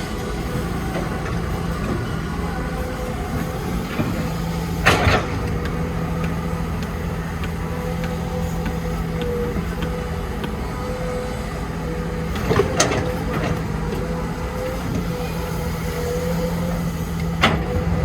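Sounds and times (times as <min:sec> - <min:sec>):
heavy machinery diesel engine running: 0:16.8 - 0:18.0.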